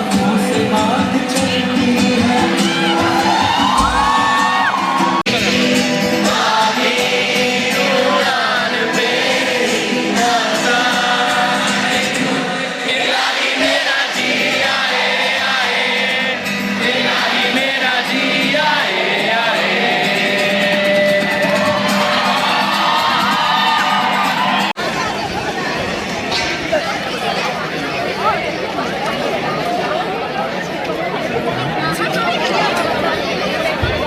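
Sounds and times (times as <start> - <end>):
live concert music with band: 0.0 - 12.8, 18.1 - 24.7
crowd singing together: 0.0 - 24.8.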